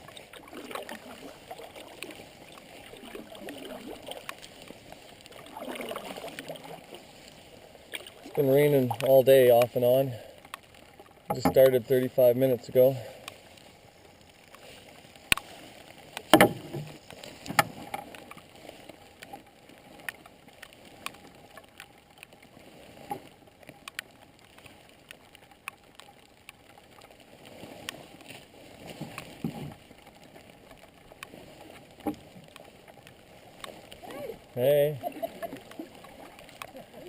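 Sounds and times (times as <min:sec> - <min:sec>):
paddle water swishes: 0:00.0 - 0:37.0
knocks on canoe hull: 0:11.3 - 0:11.6, 0:16.3 - 0:16.9.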